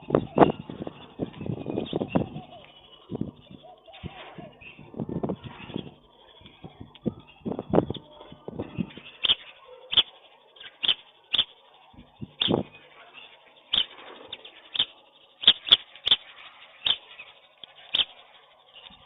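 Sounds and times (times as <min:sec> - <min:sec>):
birds feeding sharp clicks: 0:08.7 - 0:19.0.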